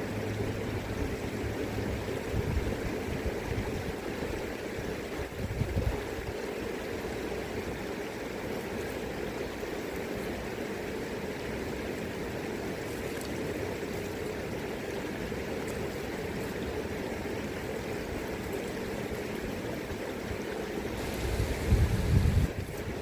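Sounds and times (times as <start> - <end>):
river current rushing: 0.0 - 23.0
wind rumbling on microphone: 1.4 - 6.4, 21.0 - 23.0.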